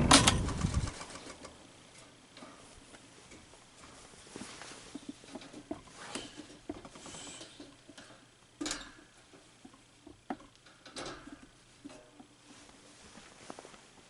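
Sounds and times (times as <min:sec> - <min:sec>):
electric fan rattling: 0:00.0 - 0:14.0.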